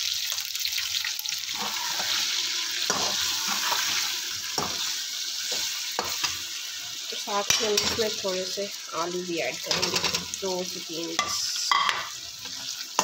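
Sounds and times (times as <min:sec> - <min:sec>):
food sizzling in a wok: 0:00.0 - 0:13.0
spatula scraping wok: 0:01.5 - 0:06.6.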